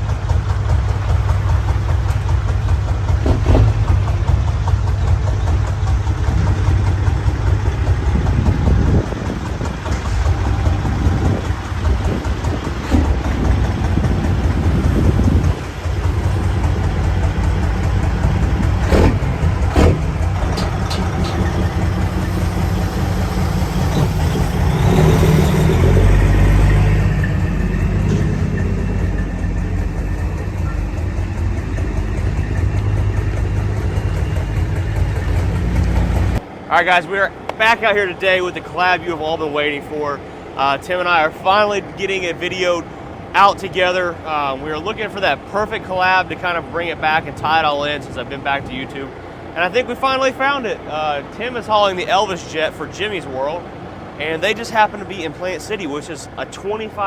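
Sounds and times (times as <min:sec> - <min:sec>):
vehicle engine rumbling: 0:00.0 - 0:57.0.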